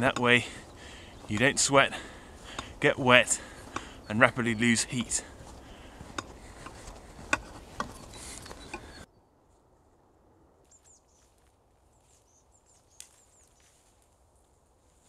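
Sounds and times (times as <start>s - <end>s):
small bird chirps: 8.0s - 9.2s.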